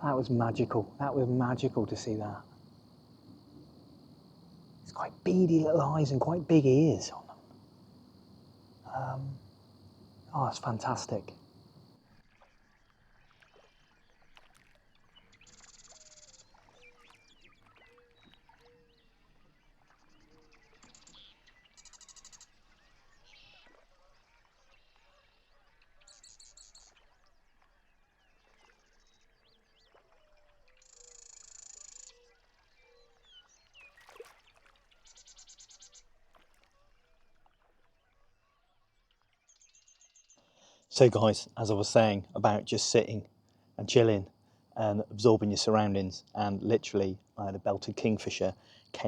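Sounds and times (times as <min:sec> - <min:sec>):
short low bird calls: 0:00.0 - 0:11.9.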